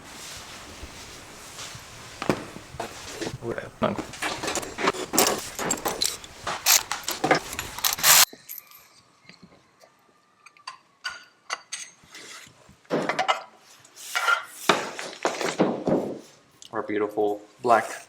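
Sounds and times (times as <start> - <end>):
metal parts clinking: 4.0 - 8.9.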